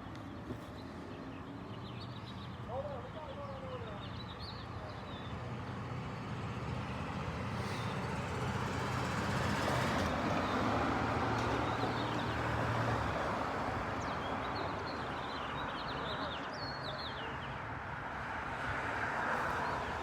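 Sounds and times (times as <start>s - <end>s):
engine rumble: 5.6s - 12.6s.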